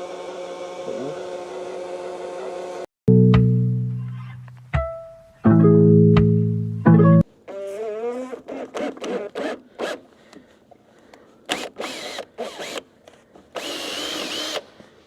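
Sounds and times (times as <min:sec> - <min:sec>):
power tool running: 0:00.0 - 0:02.9, 0:11.5 - 0:12.9, 0:13.5 - 0:14.7
short bursts of mechanical noise: 0:11.5 - 0:12.9.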